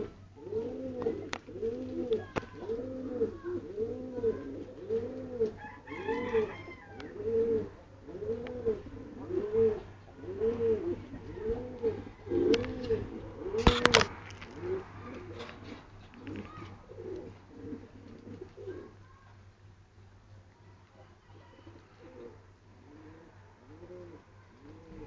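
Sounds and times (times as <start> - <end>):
pigeons cooing: 0.0 - 19.0, 21.7 - 25.0.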